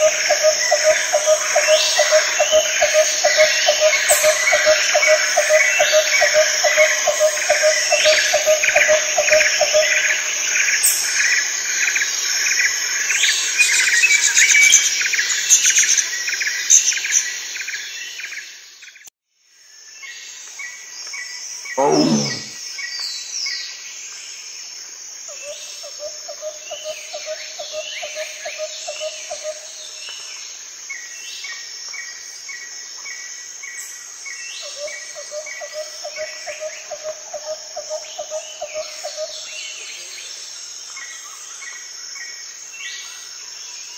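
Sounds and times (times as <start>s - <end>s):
loud call falling in pitch: 21.8s - 22.5s.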